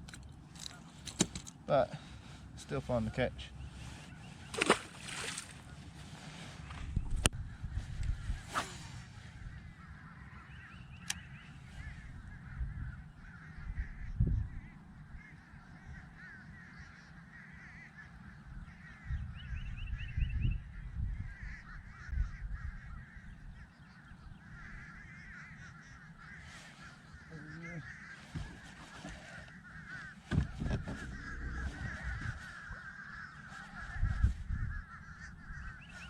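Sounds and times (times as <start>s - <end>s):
geese honking: 9.2s - 12.7s, 24.5s - 36.0s
low thumps: 30.3s - 32.5s.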